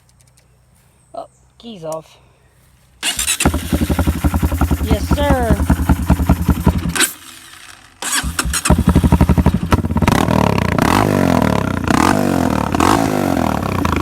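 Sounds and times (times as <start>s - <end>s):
dirt bike engine starting and running: 3.0s - 14.0s.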